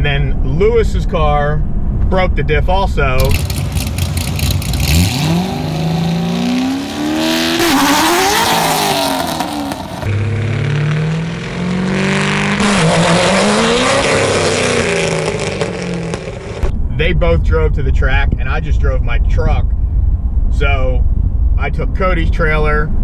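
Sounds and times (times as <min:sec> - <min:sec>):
car engine launching and revving: 0:03.2 - 0:16.8.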